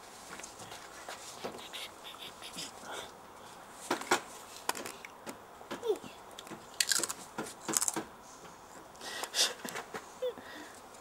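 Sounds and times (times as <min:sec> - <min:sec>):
child chewing crunchy food: 0:06.8 - 0:08.0.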